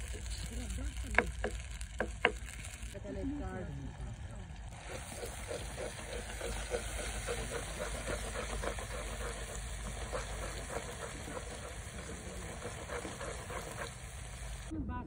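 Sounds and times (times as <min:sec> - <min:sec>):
wooden spatula scraping pot: 0:00.0 - 0:03.0, 0:04.7 - 0:14.7
curry sizzling and bubbling: 0:00.0 - 0:14.7.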